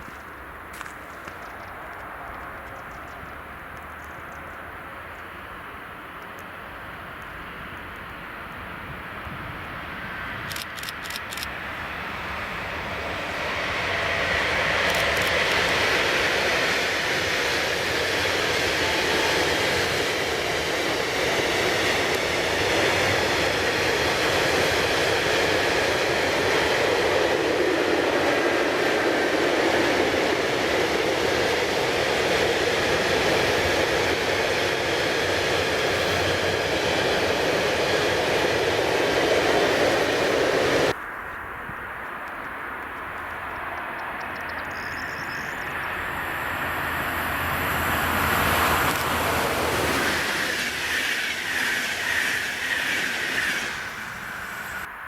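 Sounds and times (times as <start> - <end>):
freight train rolling past: 11.5 - 41.5, 42.1 - 55.0.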